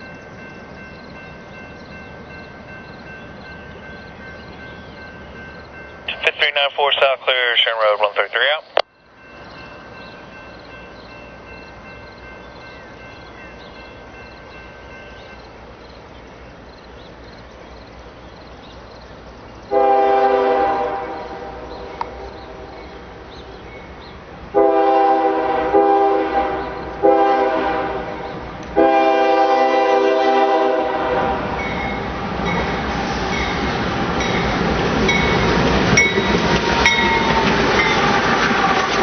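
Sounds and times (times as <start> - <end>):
diesel locomotives rumbling: 0.0 - 39.0
locomotive air horn blasts: 19.7 - 21.6, 24.6 - 28.2, 28.8 - 31.6.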